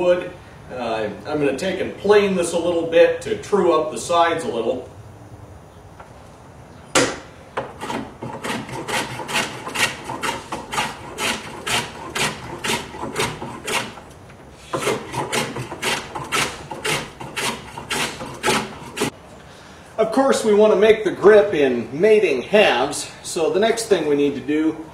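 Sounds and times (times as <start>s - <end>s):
hand plane shaving wood: 7.6s - 19.1s.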